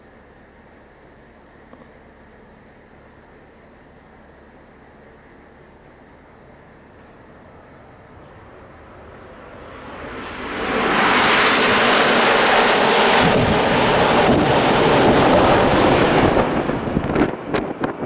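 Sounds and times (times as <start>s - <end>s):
high-speed train rushing past: 6.0s - 18.0s
wind buffeting microphone: 7.4s - 18.0s.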